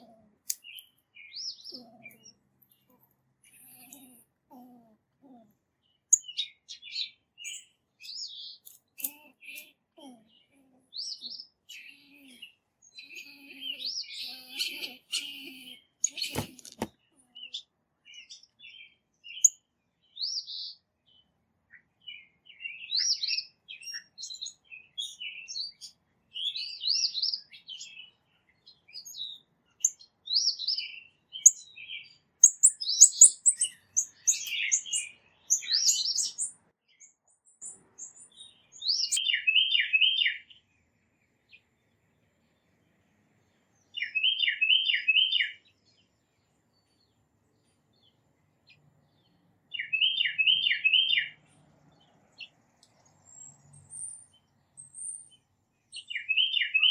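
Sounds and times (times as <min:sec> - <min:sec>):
songbirds chirping: 0:00.0 - 0:56.9
bird singing repeated notes: 0:05.3 - 0:19.6, 0:38.0 - 0:40.6, 0:43.9 - 0:45.8, 0:48.0 - 0:51.5, 0:53.2 - 0:56.9.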